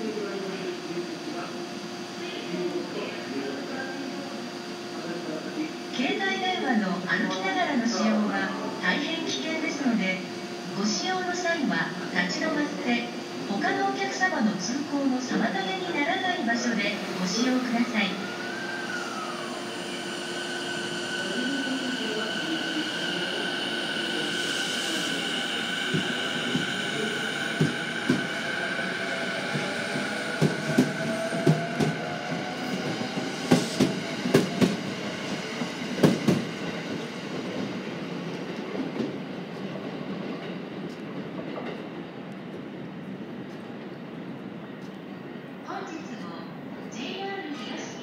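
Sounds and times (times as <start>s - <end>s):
electric train motor whine: 16.4s - 35.1s.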